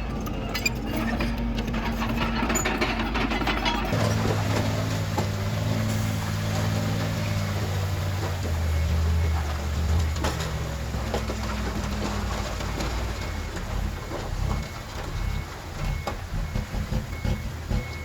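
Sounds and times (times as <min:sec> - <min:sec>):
heavy machine diesel engine running: 0:00.0 - 0:18.0
faint reverse alarm beeps: 0:04.4 - 0:18.0.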